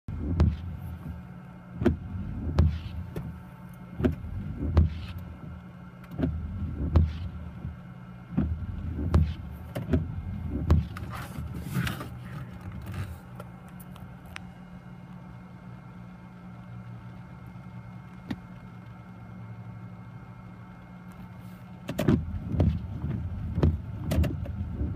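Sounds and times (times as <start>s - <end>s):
engine hum: 0.0s - 24.9s
wiper thumps: 0.1s - 1.2s, 1.8s - 3.4s, 4.0s - 13.2s, 21.9s - 24.9s
windshield wipers sweeping: 0.1s - 13.9s, 21.2s - 24.9s.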